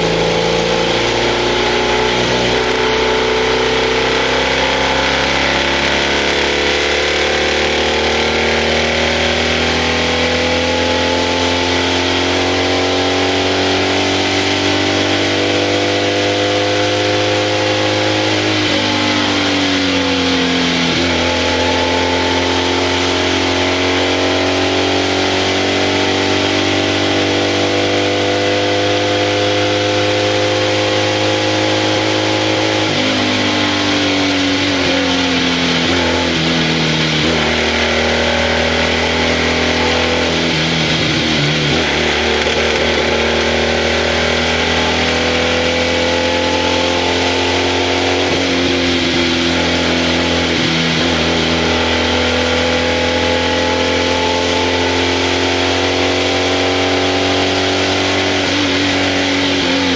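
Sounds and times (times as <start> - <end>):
racing car engine pulling hard: 0.0 - 59.9.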